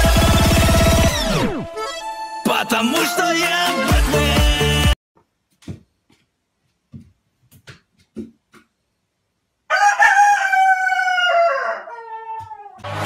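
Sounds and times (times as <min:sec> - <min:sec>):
rooster crowing: 0:09.7 - 0:12.8.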